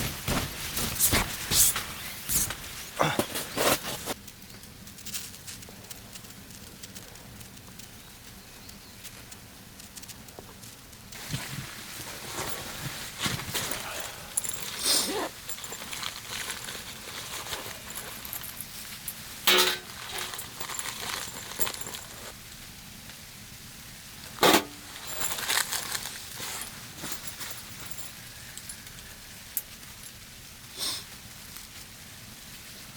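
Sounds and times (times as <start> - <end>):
rustling: 0.0 - 22.4, 24.1 - 30.2
sharp clinks: 13.6 - 22.3.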